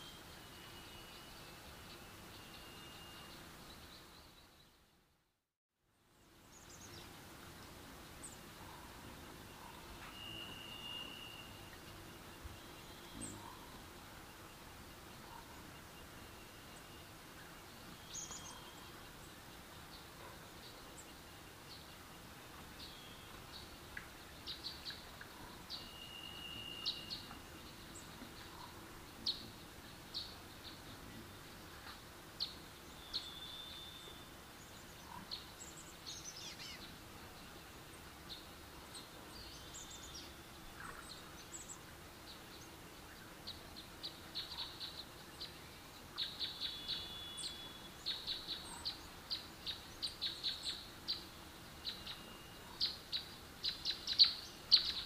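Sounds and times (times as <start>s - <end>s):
small birds chirping and whistling: 9.5s - 13.8s, 17.9s - 19.3s, 24.5s - 31.1s, 32.4s - 36.9s, 38.3s - 55.0s.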